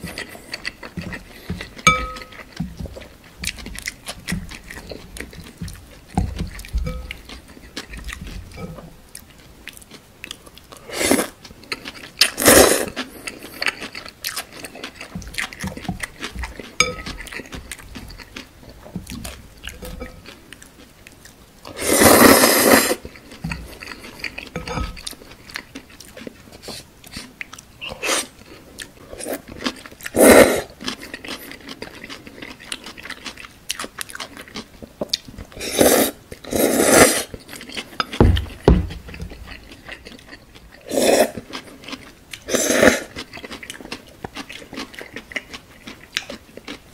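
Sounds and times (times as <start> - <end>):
chewing: 0.0 - 46.9
slurping noodles: 21.8 - 23.0, 35.6 - 37.3.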